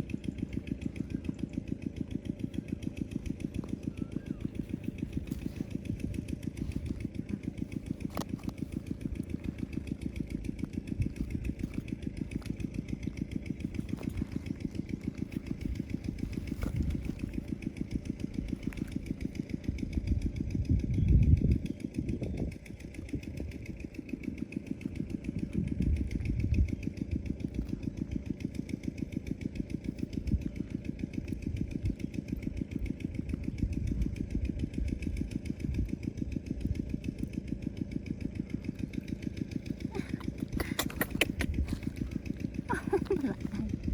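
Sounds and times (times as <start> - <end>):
motor running with rapid pulsing: 0.0 - 43.9.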